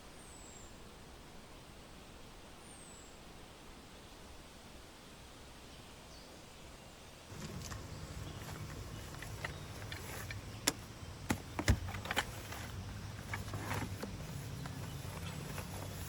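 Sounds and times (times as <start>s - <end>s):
car engine idling: 7.3s - 16.0s
sharp clicks and knocks: 7.3s - 16.0s.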